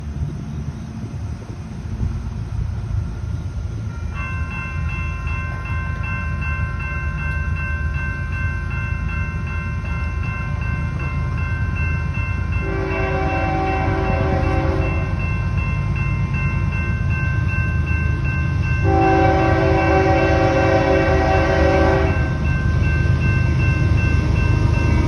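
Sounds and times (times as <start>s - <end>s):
locomotive engine rumble: 0.0s - 25.0s
train horn blasts: 12.6s - 15.2s, 18.8s - 22.5s.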